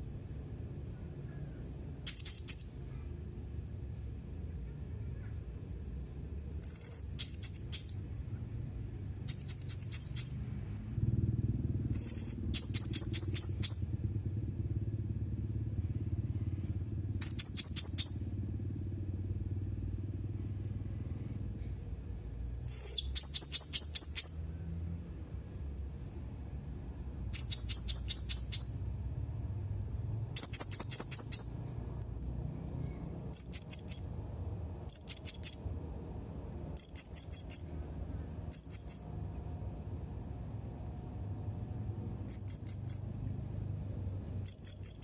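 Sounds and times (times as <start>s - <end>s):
low steady hum: 0.0s - 45.0s
parrot high-pitched chirps: 2.0s - 2.9s, 6.6s - 8.2s, 9.3s - 10.5s, 11.9s - 13.9s, 17.2s - 18.2s, 22.7s - 24.4s, 27.3s - 28.8s, 30.3s - 31.6s, 33.3s - 34.2s, 34.9s - 35.8s, 36.8s - 37.8s, 38.5s - 39.2s, 42.3s - 43.2s, 44.4s - 45.0s.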